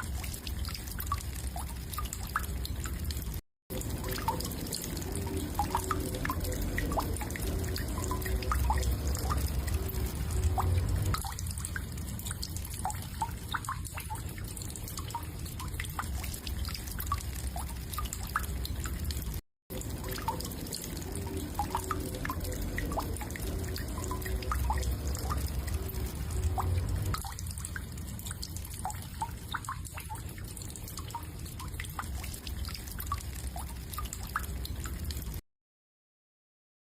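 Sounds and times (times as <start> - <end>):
water dripping: 0.0 - 35.4
low hum: 5.0 - 12.8, 20.2 - 28.7.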